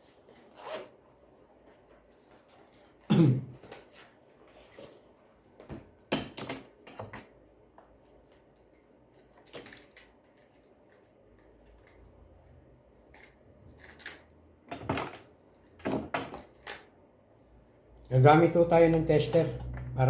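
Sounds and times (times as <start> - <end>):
knocks and clicks of parts: 5.6 - 7.4.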